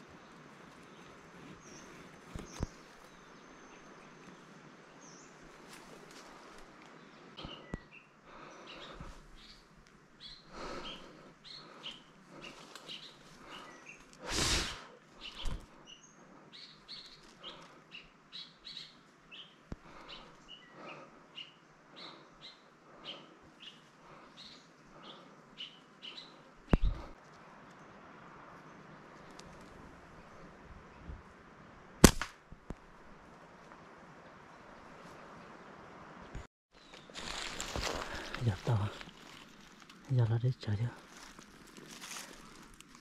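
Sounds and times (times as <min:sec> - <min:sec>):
small birds chirping: 0:00.0 - 0:31.2, 0:34.3 - 0:43.0
sharp clicks: 0:32.0 - 0:32.4.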